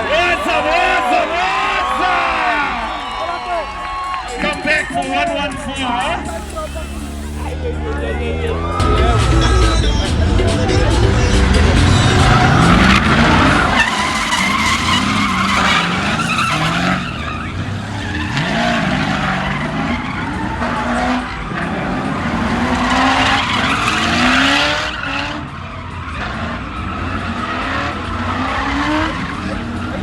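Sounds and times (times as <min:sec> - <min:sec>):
tyres screeching on tarmac: 0:00.0 - 0:07.7, 0:08.7 - 0:30.0
car engine at high revs: 0:06.0 - 0:30.0.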